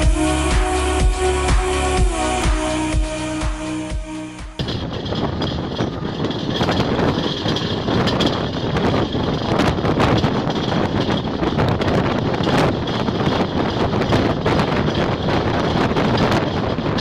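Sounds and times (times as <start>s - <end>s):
moving train rushing: 0.0s - 17.0s
wheels clattering over track: 4.6s - 17.0s.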